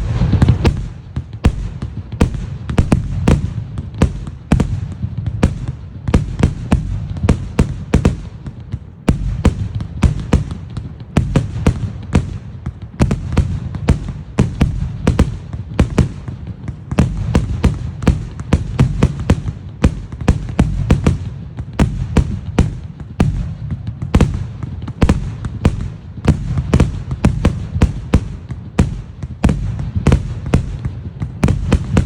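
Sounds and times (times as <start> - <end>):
low rumble: 0.0 - 1.0
firework bangs: 0.0 - 32.0.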